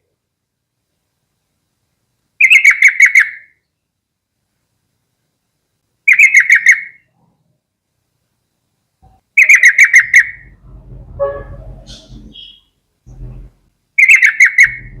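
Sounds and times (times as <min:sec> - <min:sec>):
faint low sound: 0:10.3 - 0:13.8.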